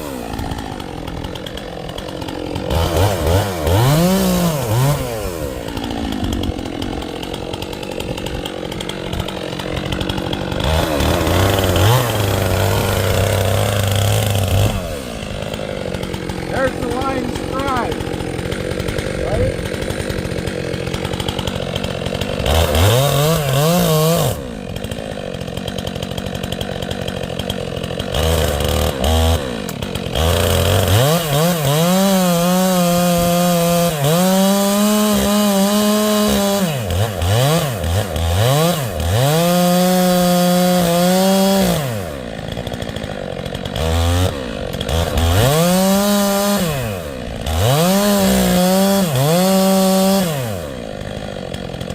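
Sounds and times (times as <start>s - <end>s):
chainsaw cutting tree trunk: 0.0s - 51.9s.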